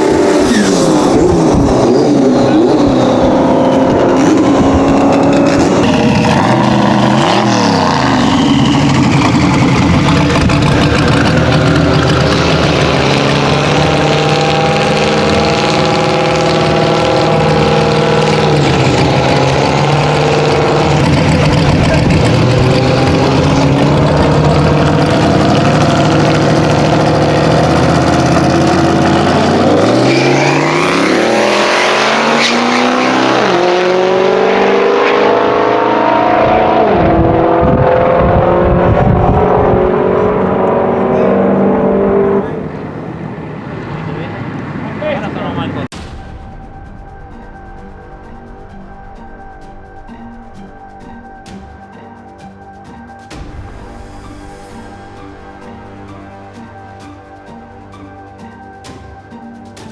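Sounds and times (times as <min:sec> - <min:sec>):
car engine revving: 0:00.0 - 0:46.0.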